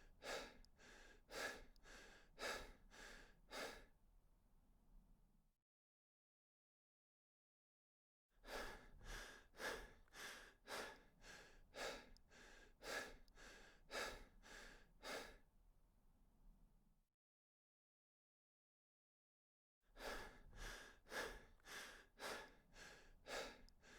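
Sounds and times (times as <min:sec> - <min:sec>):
person breathing hard: 0:00.2 - 0:03.9, 0:08.4 - 0:15.4, 0:20.0 - 0:23.9.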